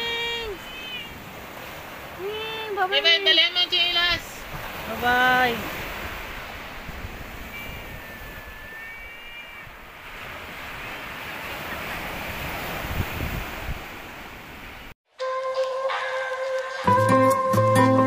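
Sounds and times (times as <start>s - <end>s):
surf washing on a beach: 0.0s - 14.9s
wind buffeting the microphone: 3.9s - 8.8s, 9.6s - 14.7s.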